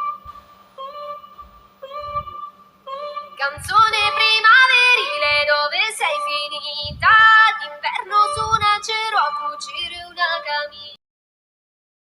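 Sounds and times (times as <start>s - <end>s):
woman singing over a light beat: 1.8s - 11.0s.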